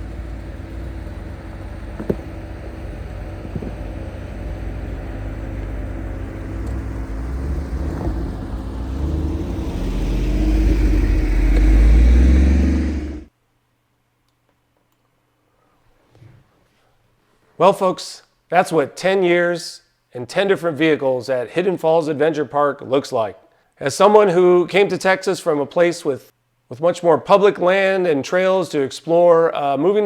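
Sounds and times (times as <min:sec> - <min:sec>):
off-road vehicle engine: 0:00.0 - 0:13.3.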